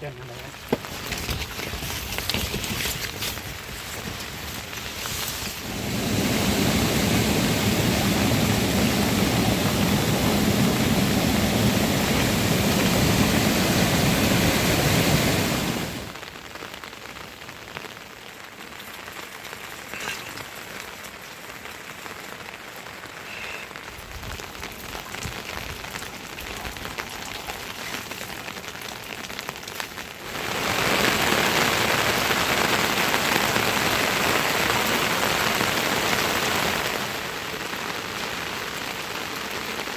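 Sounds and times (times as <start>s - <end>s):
rain falling: 0.0s - 39.9s
scattered water drips: 18.8s - 21.8s, 23.8s - 30.2s.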